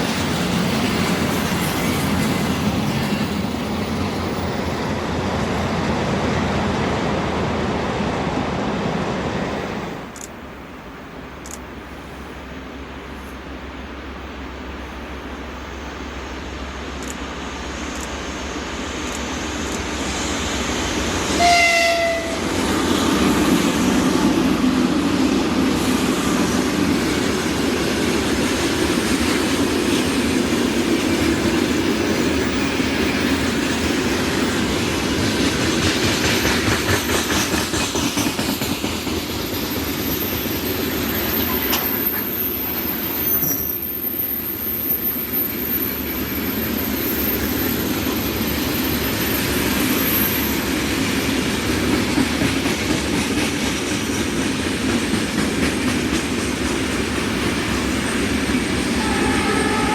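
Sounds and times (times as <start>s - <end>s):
train rumbling past: 0.0s - 59.9s
train horn blast: 21.4s - 22.5s, 59.0s - 59.9s.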